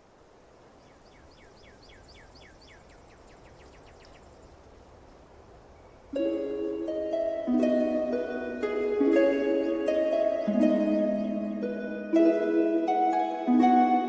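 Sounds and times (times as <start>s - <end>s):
soft outdoor ambience: 0.0s - 14.0s
harp music: 6.1s - 14.0s.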